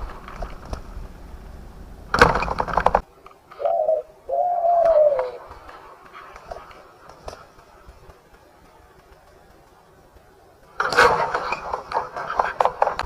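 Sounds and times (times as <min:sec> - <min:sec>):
clattering rustle: 0:00.0 - 0:03.6, 0:05.4 - 0:13.0
dove cooing: 0:03.5 - 0:06.7.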